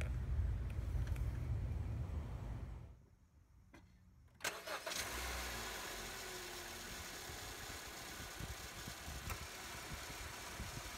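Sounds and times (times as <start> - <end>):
car engine starting and idling: 4.4 - 10.9.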